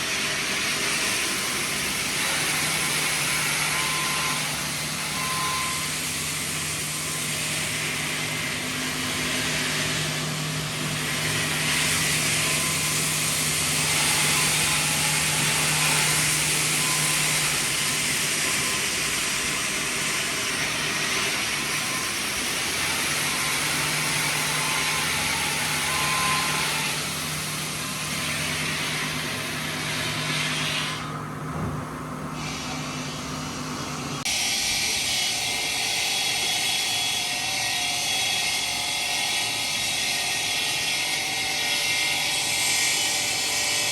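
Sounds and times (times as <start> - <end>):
machinery low hum: 31.0 - 34.3.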